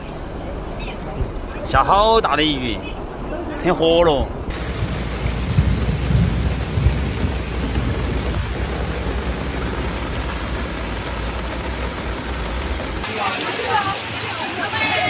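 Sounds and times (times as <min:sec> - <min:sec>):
heavy rain: 0:04.5 - 0:15.0
rushing floodwater: 0:04.5 - 0:15.0.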